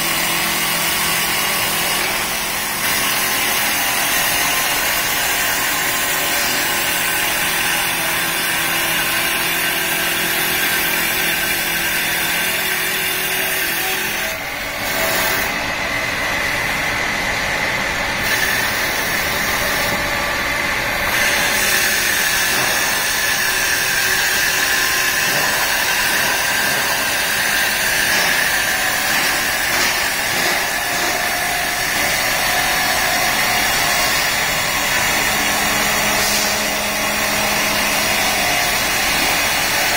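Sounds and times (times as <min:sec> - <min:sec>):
wood cutting noise: 0:00.0 - 0:39.9
wood lathe whirring: 0:00.0 - 0:39.9.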